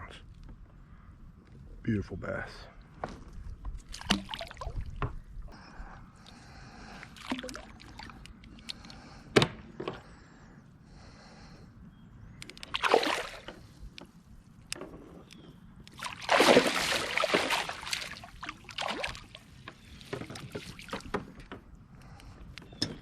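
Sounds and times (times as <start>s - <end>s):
water splashing and sloshing: 2.9s - 5.4s, 6.2s - 10.0s, 12.5s - 15.2s, 15.8s - 22.4s
knocks and clicks on a boat: 3.0s - 5.3s, 9.3s - 10.1s, 19.6s - 23.0s.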